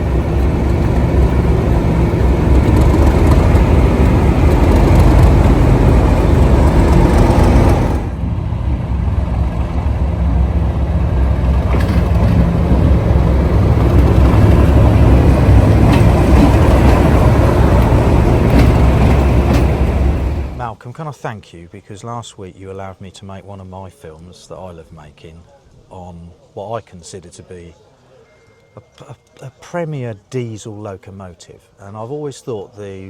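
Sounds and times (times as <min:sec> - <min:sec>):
diesel locomotive engine throbbing: 0:00.0 - 0:20.7.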